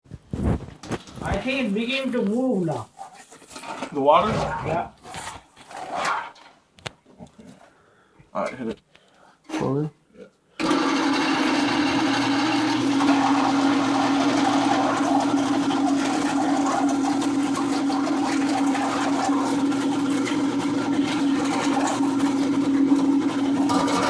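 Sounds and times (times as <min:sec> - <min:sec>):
drain cleaning machine humming: 0:10.6 - 0:24.0.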